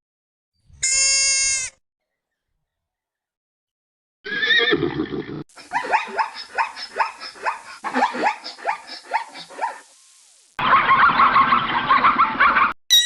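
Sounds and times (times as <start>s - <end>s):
horse whinnying: 4.2s - 5.4s.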